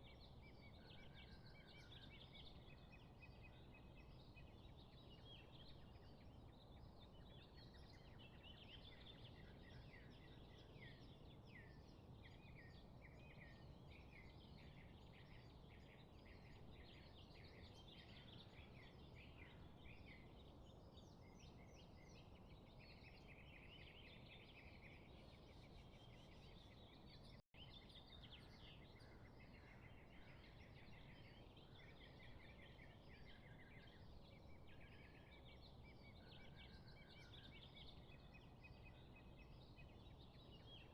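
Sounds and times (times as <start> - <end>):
small birds chirping and trilling: 0.0 - 40.9.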